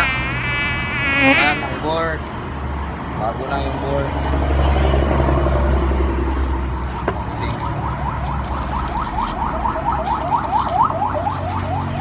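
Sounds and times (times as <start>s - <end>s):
electronic alarm chirping: 0.0s - 1.8s
engine rumble: 0.0s - 12.0s.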